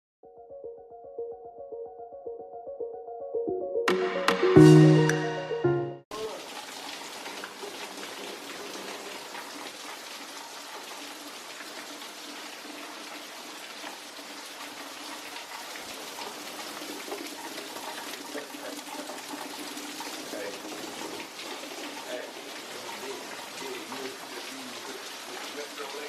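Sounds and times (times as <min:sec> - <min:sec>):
heavy rain falling: 0:06.1 - 0:26.0.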